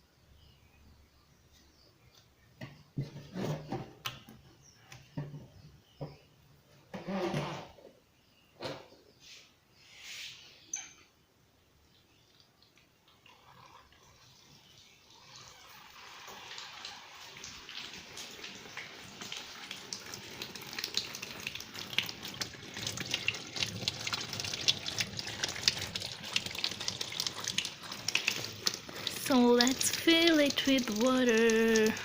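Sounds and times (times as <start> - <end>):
water running into washing machine: 15.2 - 32.0.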